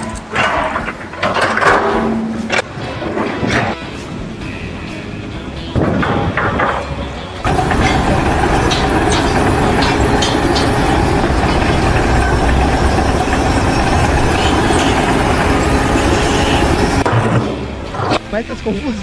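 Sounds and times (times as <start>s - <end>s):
heavy machinery noise: 0.0s - 19.0s
short metallic clanks: 5.8s - 18.4s.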